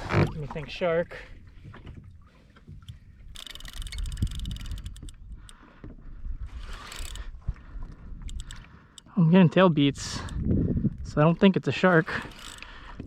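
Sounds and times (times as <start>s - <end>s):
wind and water rumble: 0.0s - 13.0s
fishing reel clicking rapidly: 3.3s - 5.6s, 6.6s - 7.3s, 8.2s - 9.1s, 12.1s - 12.8s.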